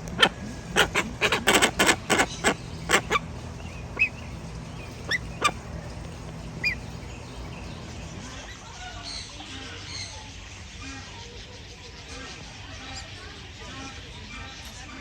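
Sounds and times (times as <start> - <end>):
bird giving loud calls: 0.0 - 4.2
steady low hum: 0.0 - 15.0
small bird chirps: 0.1 - 5.7, 6.4 - 10.9.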